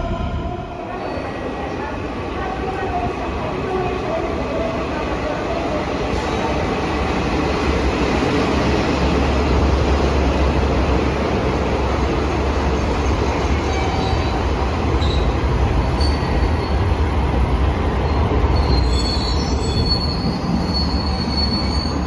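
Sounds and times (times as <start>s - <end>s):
train low rumble: 0.0s - 22.0s
wheels squealing on rails: 12.0s - 22.0s.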